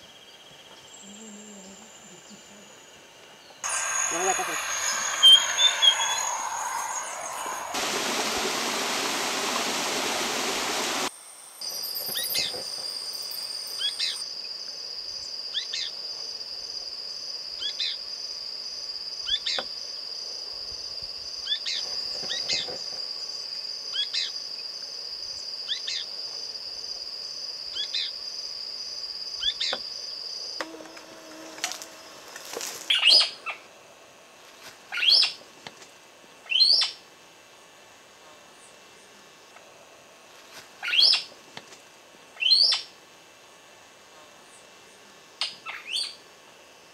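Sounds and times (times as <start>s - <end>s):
rushing noise: 3.6s - 11.1s
high-pitched whine: 3.6s - 14.4s.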